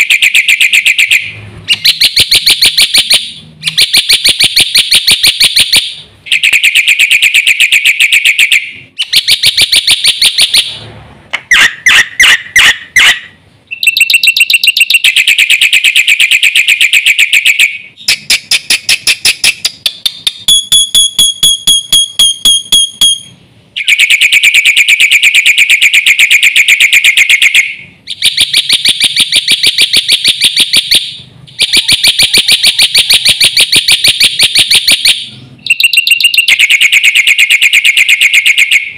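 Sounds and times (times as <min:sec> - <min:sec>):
whistled bird notes: 0:23.8 - 0:24.6.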